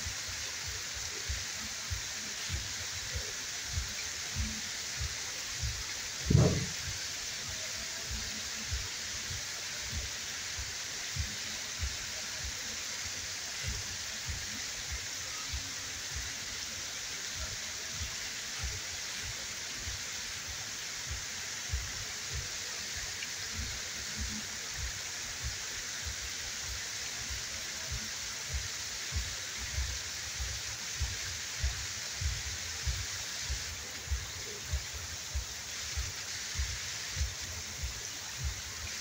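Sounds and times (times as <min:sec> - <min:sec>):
waterfall rushing: 0:00.0 - 0:39.0
low thumps: 0:06.2 - 0:06.9.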